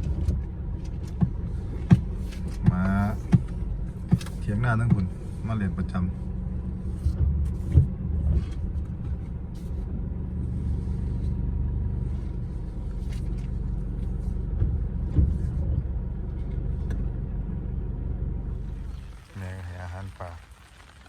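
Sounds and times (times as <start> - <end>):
small engine rumbling: 0.0 - 21.0.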